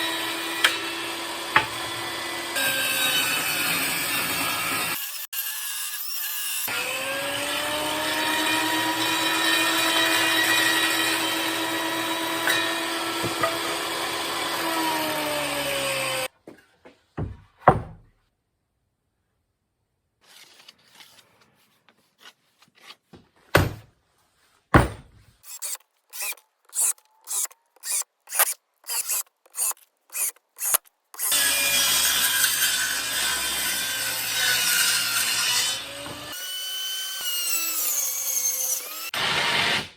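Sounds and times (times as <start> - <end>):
power saw cutting wood: 0.0 - 16.3, 25.4 - 39.9
sharp knocks: 24.7 - 25.2.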